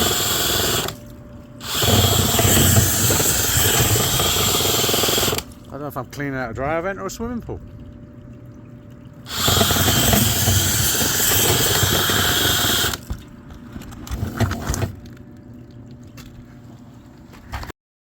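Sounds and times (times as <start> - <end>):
water rushing through vent: 0.0 - 17.0.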